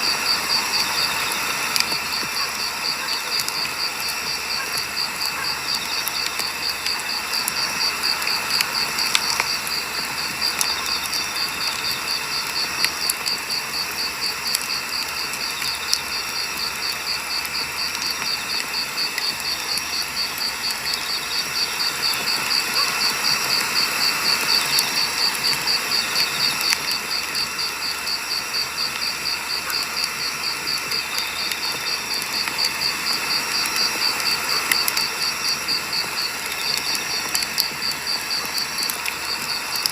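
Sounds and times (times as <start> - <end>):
firewood crackling and popping: 0.0 - 39.9.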